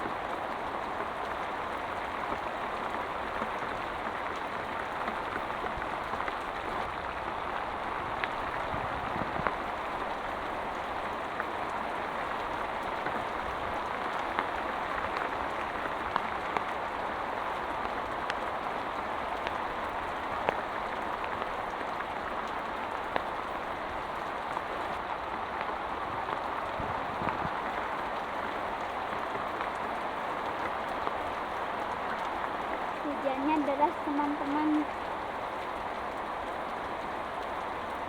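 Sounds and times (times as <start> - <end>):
heavy rain falling: 0.0 - 38.0.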